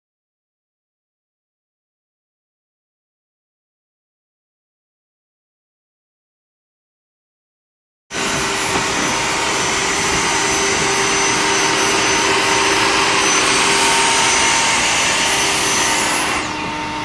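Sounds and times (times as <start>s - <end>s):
stick vacuum cleaner running: 8.1s - 17.0s.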